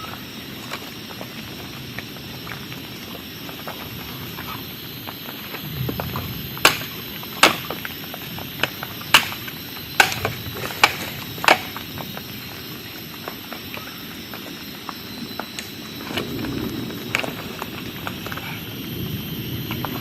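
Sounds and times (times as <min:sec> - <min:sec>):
steady background hiss: 0:00.0 - 0:20.0
sharp knocks: 0:10.0 - 0:11.8.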